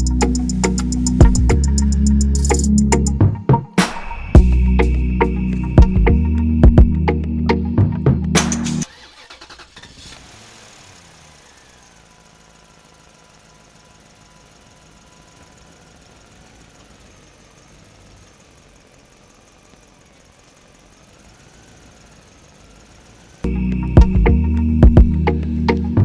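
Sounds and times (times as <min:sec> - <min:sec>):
small motor with whirring gears: 0:09.2 - 0:23.5.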